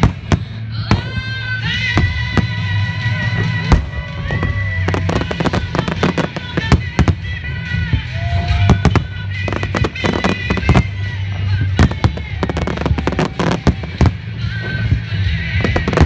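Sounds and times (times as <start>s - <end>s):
fireworks bursting: 0.0s - 16.0s
music with low bass: 0.0s - 16.0s.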